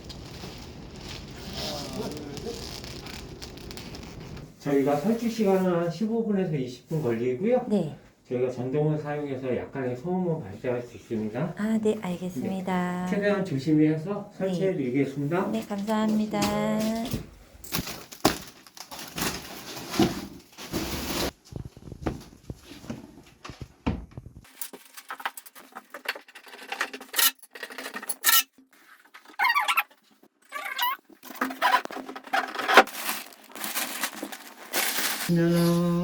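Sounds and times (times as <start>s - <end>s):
packaging rustling: 0.0s - 4.5s, 17.7s - 22.9s, 30.7s - 36.0s
short squeaks: 29.3s - 31.9s.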